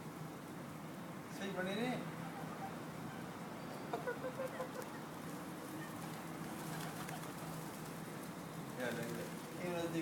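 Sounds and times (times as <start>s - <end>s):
birds calling: 2.1s - 10.0s.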